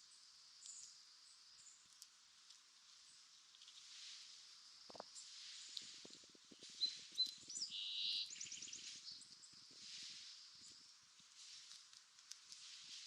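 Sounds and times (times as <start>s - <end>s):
faint crackling rustles: 1.5s - 13.0s
bird calls: 6.6s - 9.2s.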